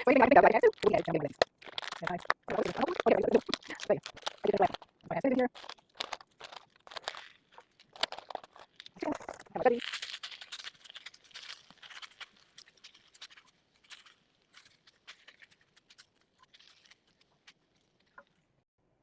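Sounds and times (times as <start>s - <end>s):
rustles: 5.5s - 18.5s.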